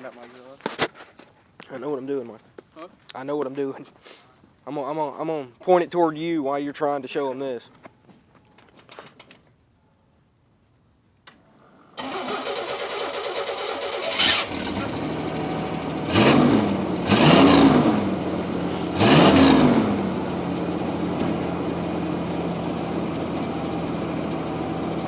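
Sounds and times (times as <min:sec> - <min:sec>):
starter motor cranking: 0:12.0 - 0:22.0
car engine idling: 0:12.0 - 0:25.0
car engine revving: 0:13.6 - 0:25.0.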